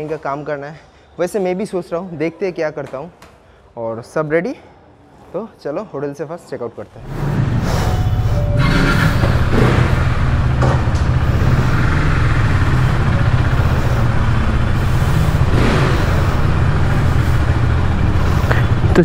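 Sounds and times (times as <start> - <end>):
motorcycle engine running at low revs: 7.0 - 19.0.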